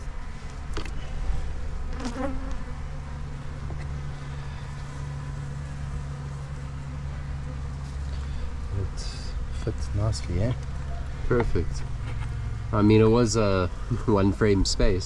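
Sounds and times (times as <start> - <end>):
bees buzzing: 1.2 - 11.2.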